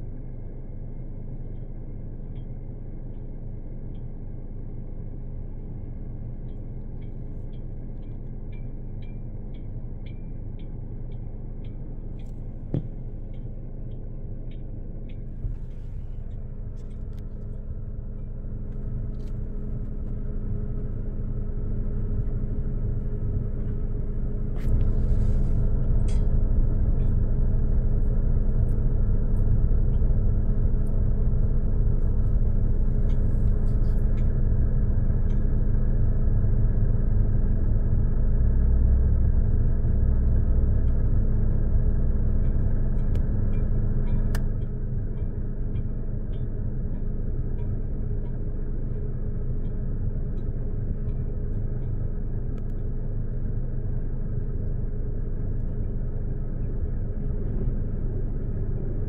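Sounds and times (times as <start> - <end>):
car engine rumbling: 12.1 - 26.7.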